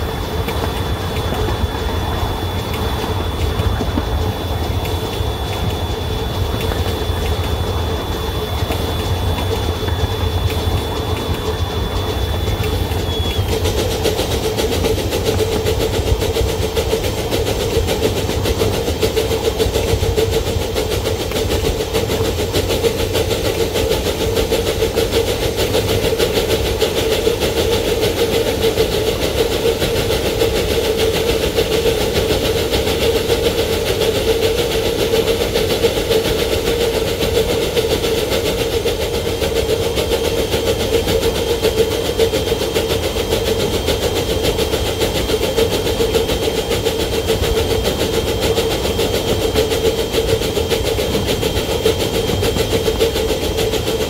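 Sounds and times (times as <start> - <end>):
faint high whine: 0.0 - 54.0
locomotive engine drone: 0.0 - 54.0
rumbling wheel and track noise: 0.0 - 54.0.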